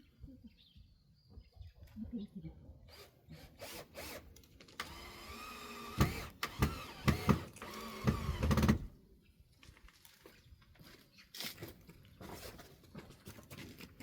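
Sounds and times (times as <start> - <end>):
cordless drill motor whining: 2.9 - 8.9.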